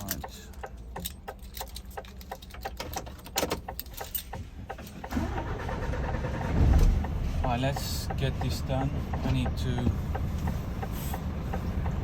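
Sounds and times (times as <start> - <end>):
light clicks and metallic rattles: 0.0 - 5.2
diesel truck engine starting and idling: 0.0 - 12.0.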